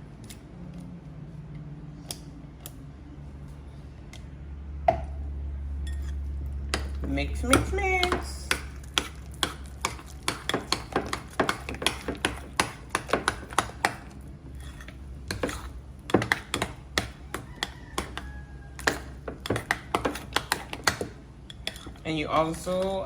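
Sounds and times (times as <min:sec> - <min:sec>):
utensil knocking against a bowl: 0:06.8 - 0:14.1, 0:15.3 - 0:21.2.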